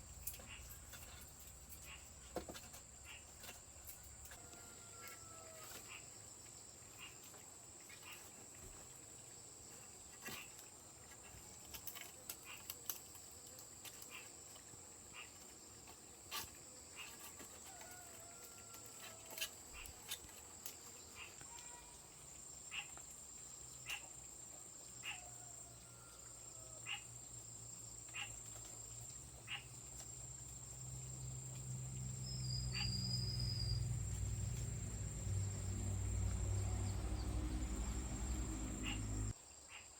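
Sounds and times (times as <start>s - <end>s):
insects droning: 0.0s - 39.9s
low hum: 32.0s - 39.3s
bird calls: 32.2s - 39.8s.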